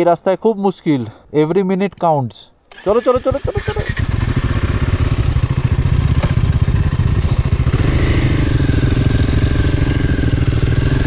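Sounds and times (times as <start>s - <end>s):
motorcycle engine running: 2.7s - 11.0s
higher humming tone: 4.6s - 11.0s.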